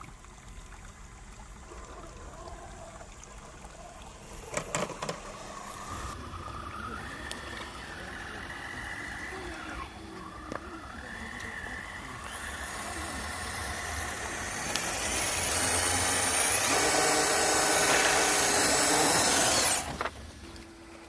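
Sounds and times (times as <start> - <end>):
rc truck motor whining: 4.4 - 21.0.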